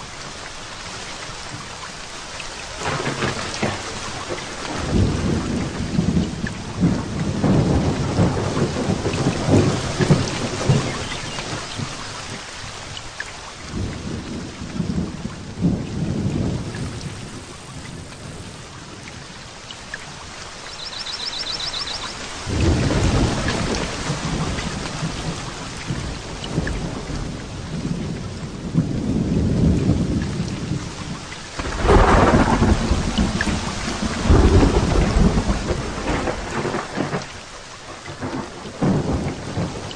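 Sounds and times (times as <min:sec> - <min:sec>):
heavy rain hissing: 0:00.0 - 0:39.9
thunder rumbling: 0:02.8 - 0:12.3, 0:13.7 - 0:19.4, 0:20.5 - 0:37.4, 0:38.1 - 0:39.9
sharp thunderclap: 0:04.6 - 0:12.0, 0:20.8 - 0:30.8, 0:31.6 - 0:37.3, 0:38.2 - 0:39.9.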